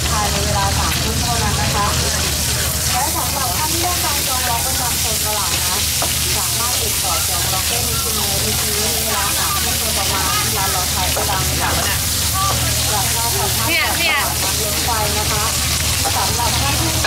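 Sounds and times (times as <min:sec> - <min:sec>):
food sizzling in hot oil: 0:00.0 - 0:17.0
metal utensil clicking on pan: 0:10.0 - 0:17.0.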